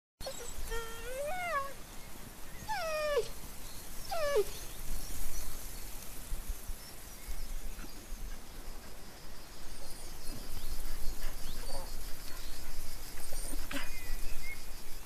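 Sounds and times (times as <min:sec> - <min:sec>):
dog whining: 0:00.2 - 0:01.8, 0:02.7 - 0:03.3, 0:04.1 - 0:04.5
outdoor background noise: 0:00.2 - 0:15.0.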